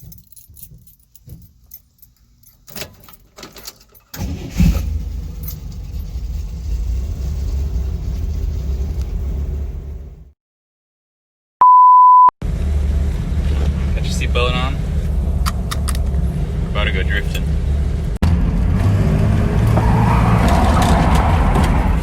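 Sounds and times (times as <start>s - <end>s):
keys jingling: 0.0s - 4.2s
car engine starting and running: 4.1s - 10.3s, 12.4s - 22.0s.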